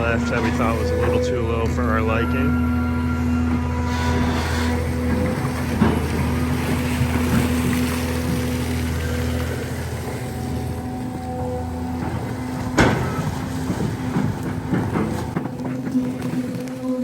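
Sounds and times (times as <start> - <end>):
diesel excavator engine running: 0.0 - 17.0
faint knocks: 3.5 - 16.7.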